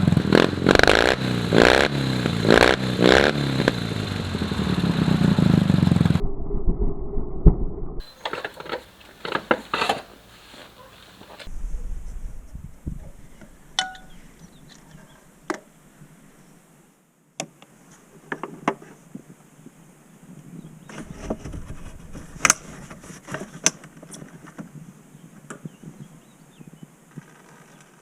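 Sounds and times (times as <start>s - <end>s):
low rumbling: 0.0s - 8.1s, 11.2s - 16.8s, 20.3s - 23.3s.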